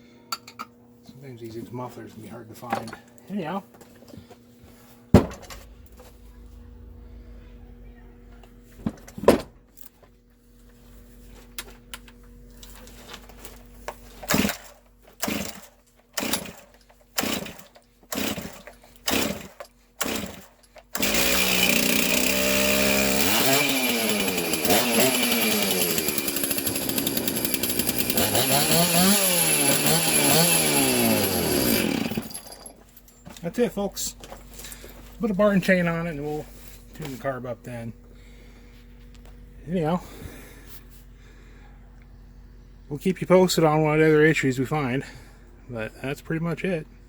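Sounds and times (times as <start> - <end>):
chainsaw starter cord pulls: 12.6 - 32.8
chainsaw engine revving: 14.2 - 32.6.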